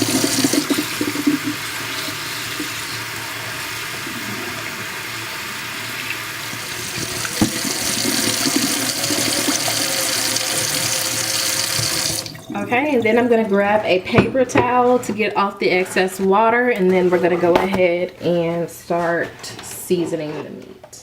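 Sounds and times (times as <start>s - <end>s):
tap running water splashing: 0.0s - 14.8s.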